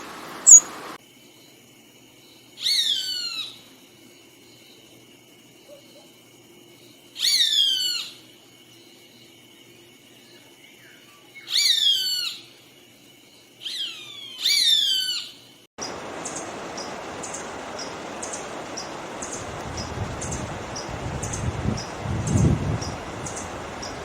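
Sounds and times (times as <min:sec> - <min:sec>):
steady rushing hiss: 0:00.0 - 0:01.0, 0:15.8 - 0:24.0
bird whistling call: 0:00.4 - 0:00.7, 0:13.7 - 0:15.3.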